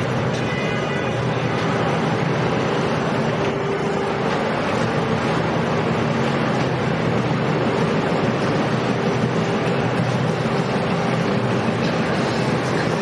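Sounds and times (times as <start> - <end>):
motorboat engines running: 0.0 - 13.0
wind: 0.0 - 13.0.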